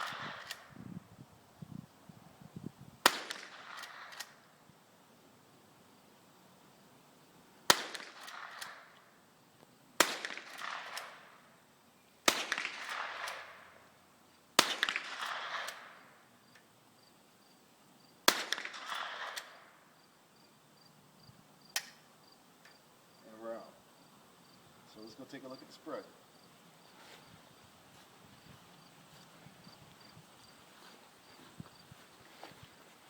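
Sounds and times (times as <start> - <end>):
rifle shots: 0.0 - 0.7, 3.0 - 4.4, 7.7 - 9.0, 10.0 - 11.4, 12.3 - 13.8, 14.6 - 16.1, 18.3 - 19.7
sharp click: 21.7 - 22.0.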